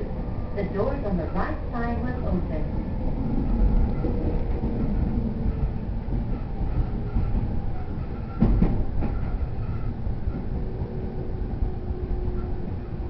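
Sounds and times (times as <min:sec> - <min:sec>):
train wheels rumbling on rail: 0:00.0 - 0:13.0
wheels knocking on rail joint: 0:06.1 - 0:10.5.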